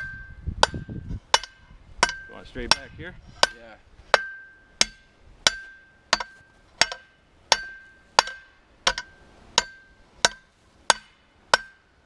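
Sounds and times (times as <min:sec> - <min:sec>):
hammer striking hot steel rod: 0:00.0 - 0:11.9.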